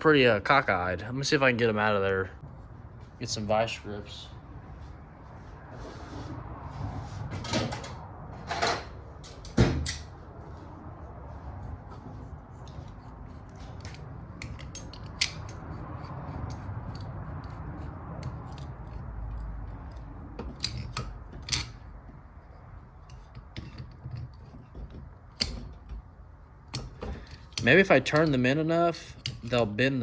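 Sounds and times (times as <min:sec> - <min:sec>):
metal parts clicking and scraping: 0:12.7 - 0:30.0.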